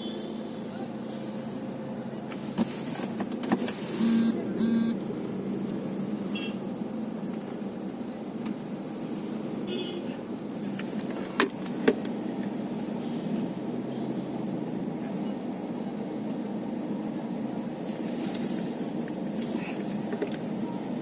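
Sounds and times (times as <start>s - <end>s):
truck engines idling: 0.0s - 21.0s
truck horn blasts: 6.3s - 6.6s.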